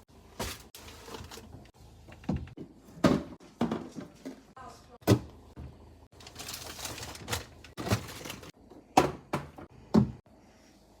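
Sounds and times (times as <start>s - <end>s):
items knocking in fridge: 0.3s - 4.4s, 6.4s - 10.2s.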